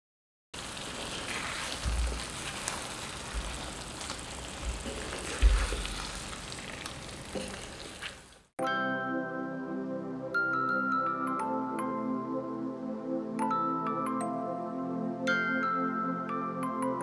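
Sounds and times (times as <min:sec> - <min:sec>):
wooden spatula stirring and scraping: 0:00.6 - 0:08.4
gravy sizzling in hot oil: 0:00.6 - 0:08.5.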